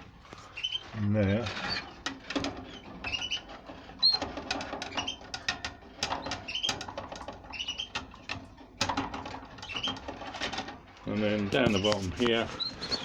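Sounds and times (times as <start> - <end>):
canaries chirping: 0.4 - 0.9, 2.7 - 4.3, 11.6 - 13.0.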